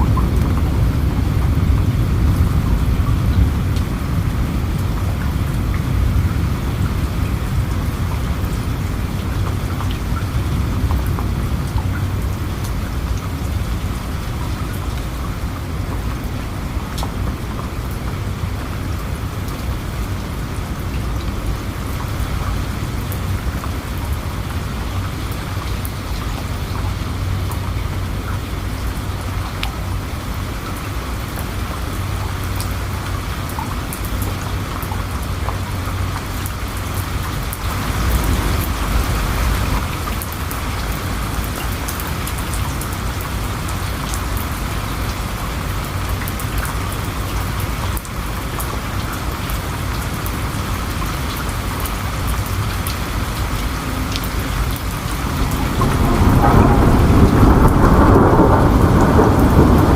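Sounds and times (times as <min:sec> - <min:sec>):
raindrops ticking: 0:00.0 - 0:59.9
steady rainfall hiss: 0:00.0 - 0:59.9
low rumble: 0:53.6 - 0:59.9.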